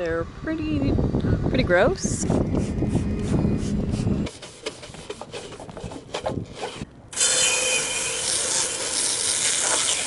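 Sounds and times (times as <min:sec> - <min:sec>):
scrubbing metal mast: 0:02.6 - 0:10.0.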